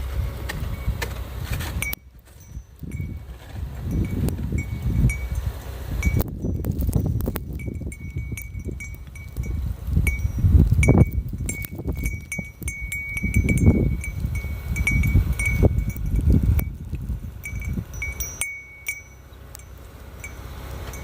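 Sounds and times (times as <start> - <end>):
wind chime tinkling: 1.8 - 16.8, 17.4 - 21.0
storm wind gusting: 2.6 - 18.4.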